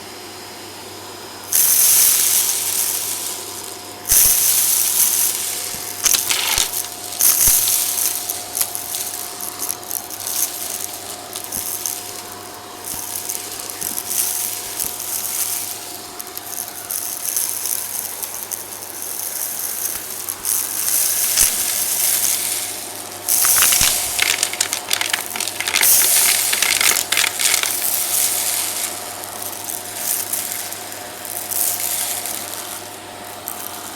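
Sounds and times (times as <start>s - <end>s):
debris crackling in vacuum brush: 2.1s - 18.6s, 19.3s - 33.7s.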